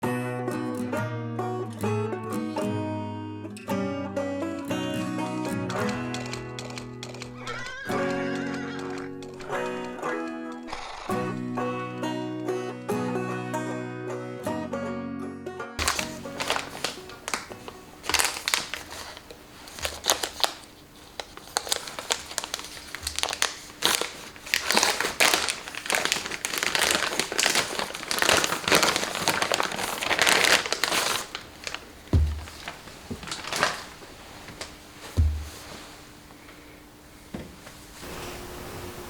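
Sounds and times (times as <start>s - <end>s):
crinkling handling noise: 15.8s - 36.6s
low thump: 35.2s - 35.7s.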